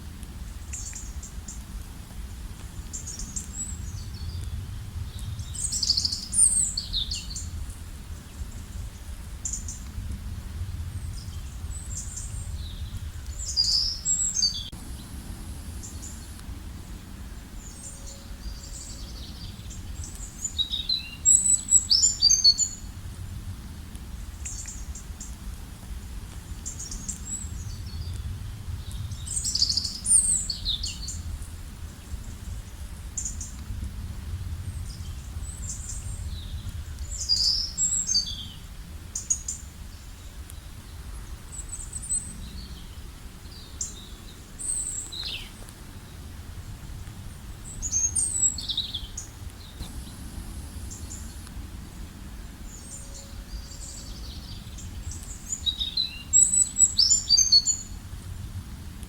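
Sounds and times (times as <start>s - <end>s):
low outdoor rumble: 0.0s - 59.0s.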